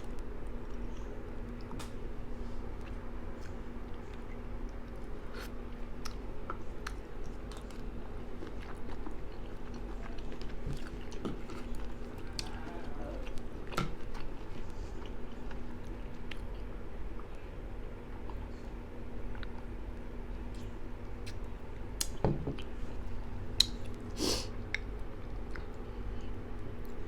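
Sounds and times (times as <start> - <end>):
steady low hum: 0.0 - 27.0
person chewing with mouth clicks: 2.8 - 17.4, 24.7 - 27.0.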